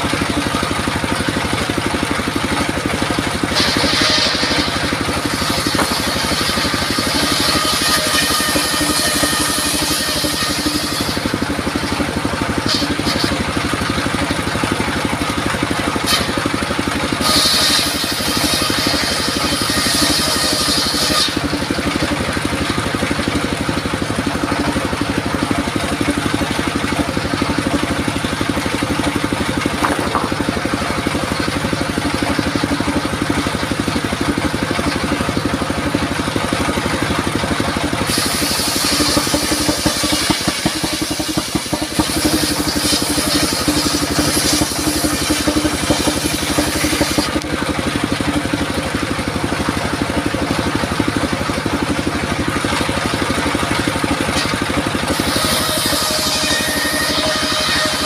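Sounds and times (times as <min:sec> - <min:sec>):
circular sawmill running: 0:00.0 - 0:58.0
saw blade cutting wood: 0:00.0 - 0:58.0.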